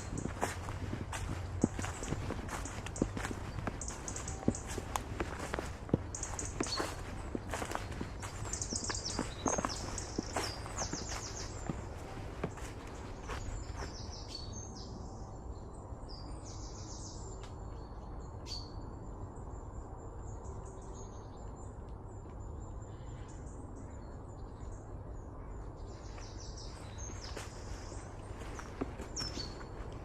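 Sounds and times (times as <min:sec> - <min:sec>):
low outdoor rumble: 0:00.0 - 0:13.9
small birds chirping: 0:00.0 - 0:14.9, 0:20.4 - 0:30.0.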